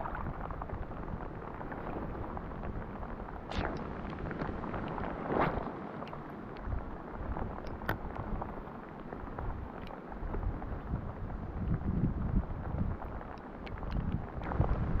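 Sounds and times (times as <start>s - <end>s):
wind buffeting microphone: 0.0s - 5.7s, 6.6s - 15.0s
steady rushing noise: 0.0s - 15.0s
faint ticks: 6.0s - 6.8s, 7.4s - 11.0s, 12.7s - 14.7s.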